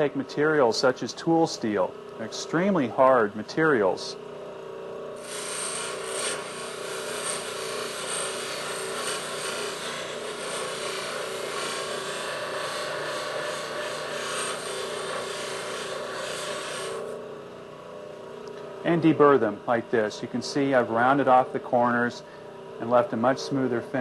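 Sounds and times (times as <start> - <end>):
machine motor running: 5.0 - 17.4
steel grinding on wheel: 5.2 - 17.2.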